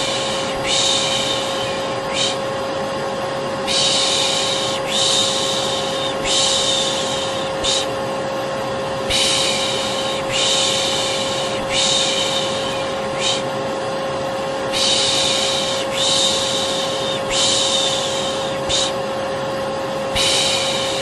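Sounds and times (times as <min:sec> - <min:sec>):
person shushing: 0:00.0 - 0:02.5, 0:03.7 - 0:08.0, 0:09.1 - 0:13.5, 0:14.7 - 0:19.0, 0:20.1 - 0:21.0
vacuum cleaner whining: 0:00.0 - 0:21.0.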